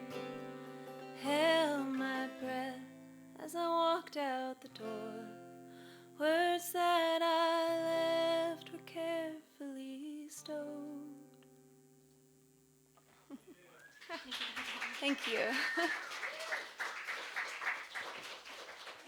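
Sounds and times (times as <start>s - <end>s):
acoustic guitar: 0.0s - 13.8s.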